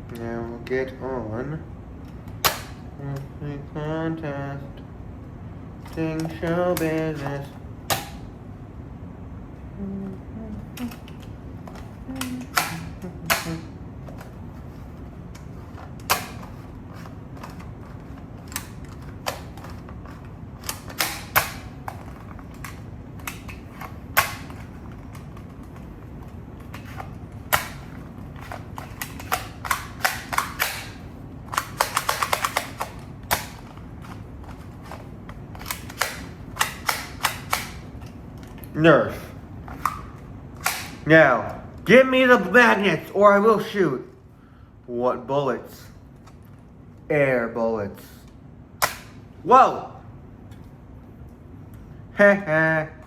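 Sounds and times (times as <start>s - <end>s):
toy pieces clicking: 28.5s - 33.6s.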